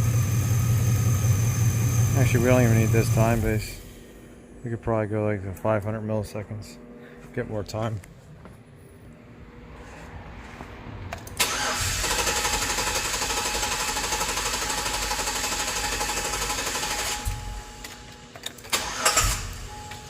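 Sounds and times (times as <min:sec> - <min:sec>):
engine cranking on starter: 0:11.2 - 0:17.4, 0:18.6 - 0:19.8.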